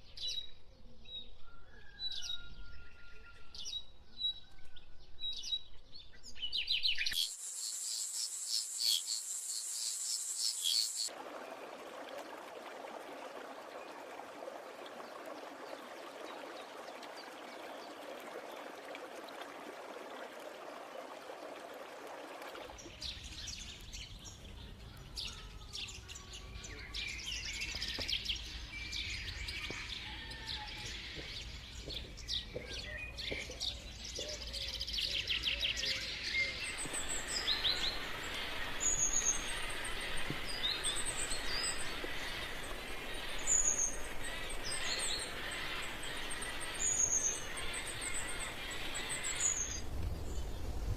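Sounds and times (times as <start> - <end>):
forest birds chirping: 1.2 - 11.8, 22.7 - 50.9
steady hiss: 7.2 - 11.1, 36.6 - 50.9.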